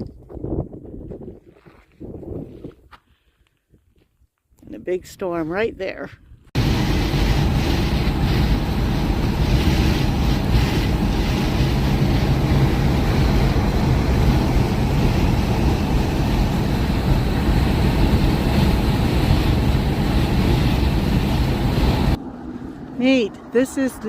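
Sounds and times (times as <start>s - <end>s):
wind buffeting microphone: 0.0s - 3.0s, 4.9s - 24.0s
vehicle driving on road: 6.6s - 24.0s.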